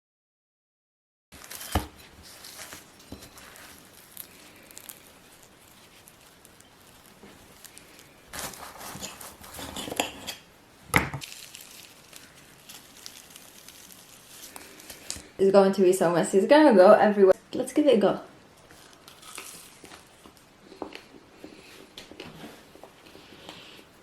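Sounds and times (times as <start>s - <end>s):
rustling and scraping: 1.4s - 10.4s, 18.6s - 23.9s.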